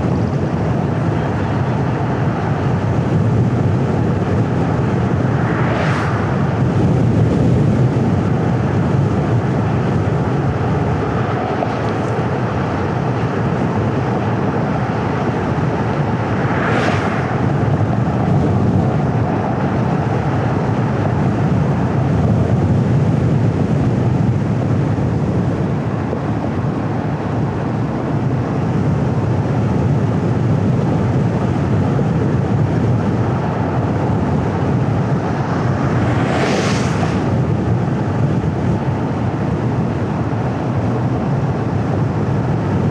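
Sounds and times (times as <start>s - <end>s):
tyres and engine rumble: 0.0s - 42.9s
brief whooshes: 5.4s - 6.5s, 35.4s - 37.3s.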